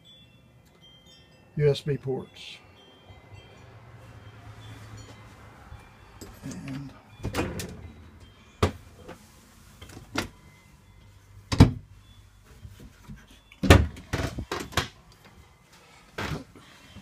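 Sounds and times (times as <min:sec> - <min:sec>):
trailer door knocks and clunks: 0:07.2 - 0:07.8.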